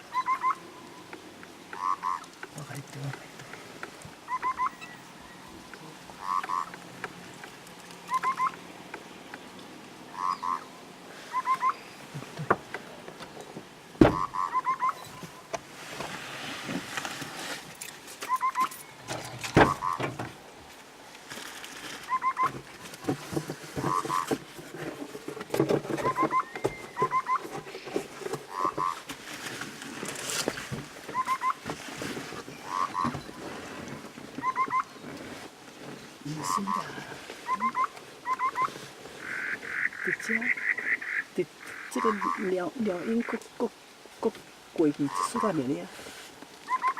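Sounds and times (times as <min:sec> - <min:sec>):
bird calling: 0:00.0 - 0:15.6, 0:18.2 - 0:20.2, 0:22.0 - 0:23.2, 0:23.8 - 0:24.4, 0:25.9 - 0:29.1, 0:30.4 - 0:31.6, 0:32.5 - 0:35.2, 0:35.9 - 0:45.8, 0:46.6 - 0:46.9
bird calling rising notes: 0:00.1 - 0:01.1, 0:04.3 - 0:06.8, 0:08.0 - 0:08.6, 0:10.1 - 0:12.1, 0:14.2 - 0:15.5, 0:34.4 - 0:35.0, 0:37.4 - 0:42.4.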